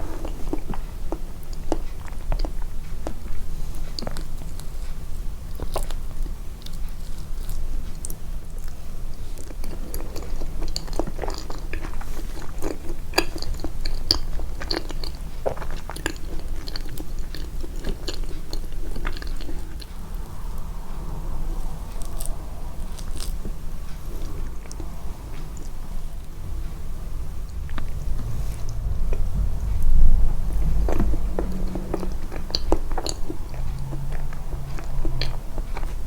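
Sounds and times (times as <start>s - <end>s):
close chewing and biting: 0.0s - 36.0s
low hum: 19.0s - 36.0s.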